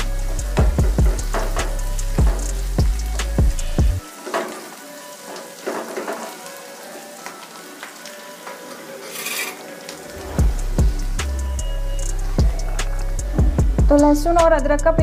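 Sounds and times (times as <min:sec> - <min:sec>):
background music with a beat: 0:00.0 - 0:06.2, 0:10.1 - 0:15.0
onions sizzling in a pan: 0:00.0 - 0:14.4
spatula scraping a pan: 0:09.0 - 0:09.8.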